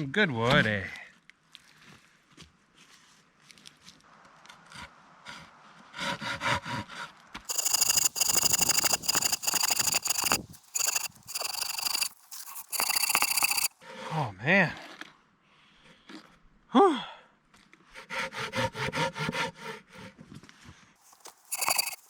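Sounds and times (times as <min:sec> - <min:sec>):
saw cutting log: 0:07.5 - 0:13.7.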